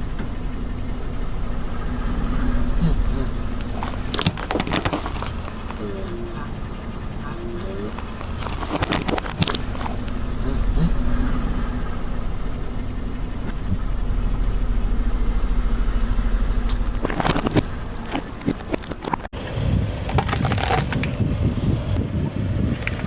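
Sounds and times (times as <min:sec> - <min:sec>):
car engine running: 0:00.0 - 0:23.0
tyre crushing objects crackling: 0:03.7 - 0:06.0, 0:20.0 - 0:21.2.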